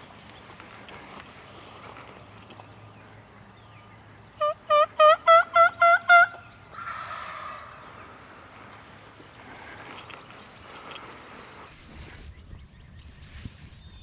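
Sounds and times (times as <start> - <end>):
turkey yelping: 4.4 - 8.0.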